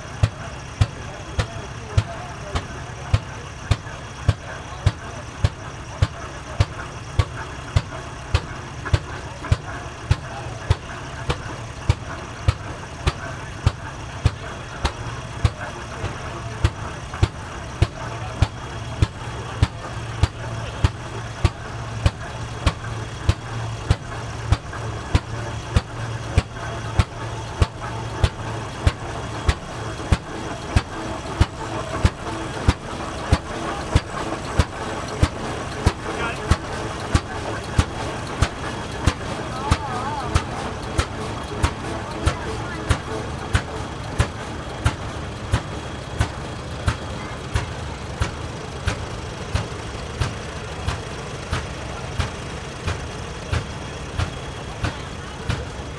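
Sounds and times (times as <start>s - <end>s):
exhaust pops: 0.0s - 55.9s
tractor engines idling: 0.0s - 55.9s.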